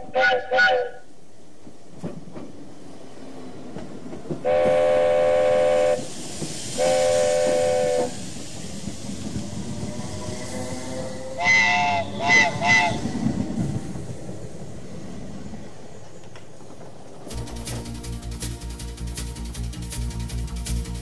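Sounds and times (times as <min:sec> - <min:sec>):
train whistle blasts: 0:00.0 - 0:01.1, 0:04.4 - 0:06.1, 0:06.7 - 0:08.2, 0:10.5 - 0:13.2
train rumble and clatter: 0:00.0 - 0:21.0.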